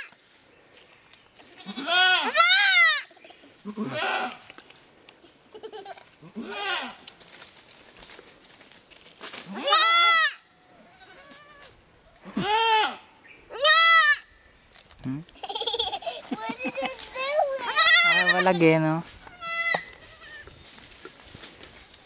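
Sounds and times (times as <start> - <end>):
goats bleating: 1.6 - 3.1, 3.7 - 4.4, 6.2 - 7.0, 12.3 - 13.0, 17.5 - 18.7.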